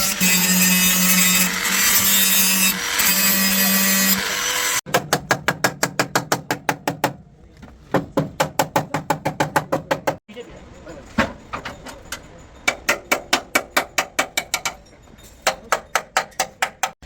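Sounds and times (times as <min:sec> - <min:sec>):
power tool humming: 0:00.0 - 0:04.8.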